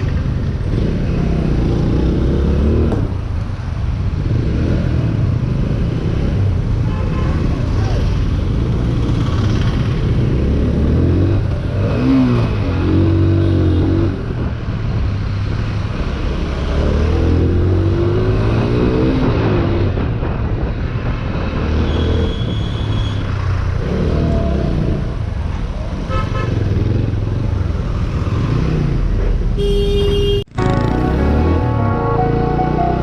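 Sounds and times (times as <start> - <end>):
vehicle horns honking: 29.6 - 33.0.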